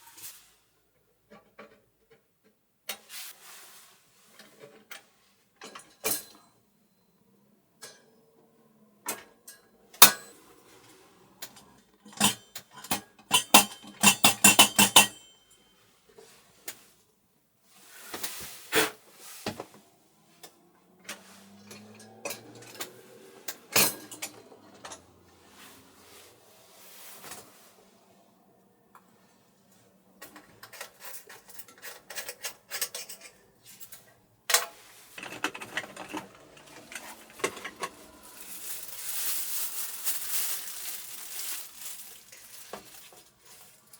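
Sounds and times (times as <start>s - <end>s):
dishes and utensils clattering: 11.5s - 15.4s, 35.2s - 39.0s.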